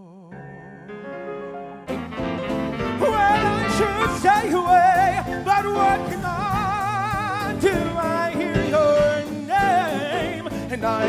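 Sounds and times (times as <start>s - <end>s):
person singing with vibrato: 0.0s - 1.1s, 2.8s - 11.0s
instrumental accompaniment: 0.4s - 11.0s.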